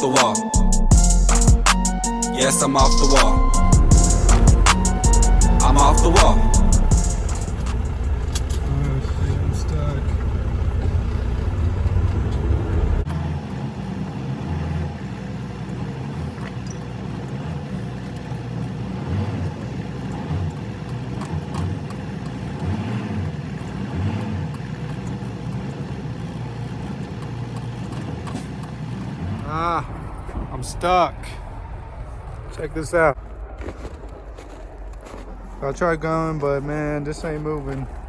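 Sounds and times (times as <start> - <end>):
truck diesel engine droning: 0.0 - 38.0
heavy low rumble: 0.6 - 13.3, 29.1 - 38.0.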